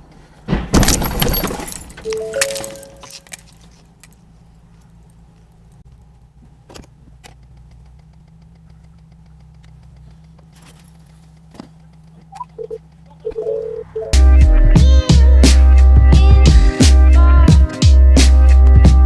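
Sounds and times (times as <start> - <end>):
car engine idling: 1.3 - 19.0
faint clicks: 7.1 - 13.4.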